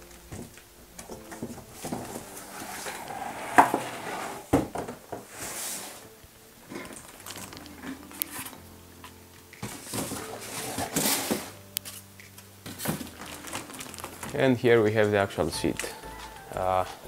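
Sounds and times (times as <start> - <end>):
plastic bag rustling: 0.0 - 8.7, 9.4 - 17.0
knocks and scrapes of handling: 0.4 - 6.1.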